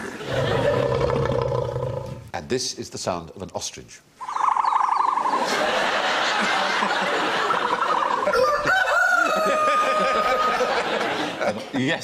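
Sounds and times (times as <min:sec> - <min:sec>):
recorded ostrich call: 0:04.2 - 0:05.5
audience laughter: 0:05.3 - 0:08.7, 0:09.3 - 0:11.8.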